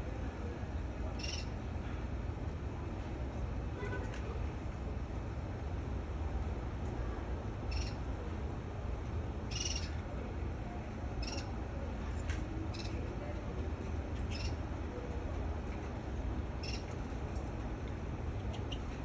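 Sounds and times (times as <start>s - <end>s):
canary chirping: 7.7s - 8.0s, 9.5s - 9.9s, 11.2s - 11.5s, 14.3s - 14.6s, 16.6s - 16.9s.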